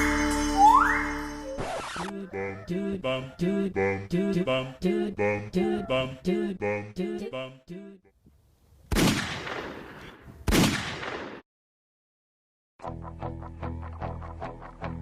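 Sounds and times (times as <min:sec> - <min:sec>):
gunshots with echo: 0:08.9 - 0:11.4.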